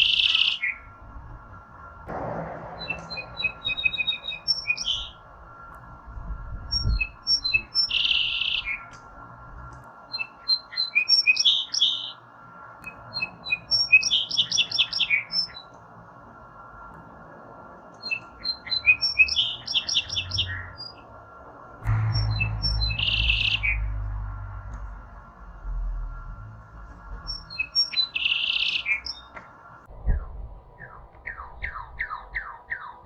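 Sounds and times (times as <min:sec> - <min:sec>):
songbird singing with buzzy trill: 0:06.7 - 0:09.0, 0:10.1 - 0:12.2, 0:12.9 - 0:15.8, 0:18.0 - 0:21.0, 0:27.2 - 0:29.4.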